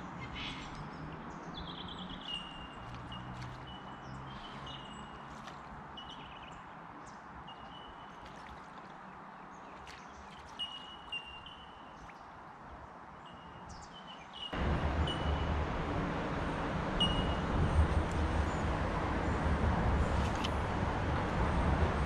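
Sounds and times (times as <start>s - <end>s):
rushing noise with low rumble: 14.6s - 22.0s.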